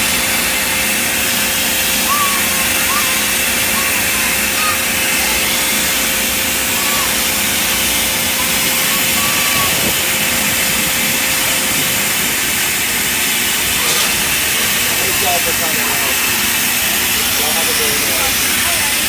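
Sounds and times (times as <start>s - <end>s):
car wash hissing rush: 0.0s - 19.0s.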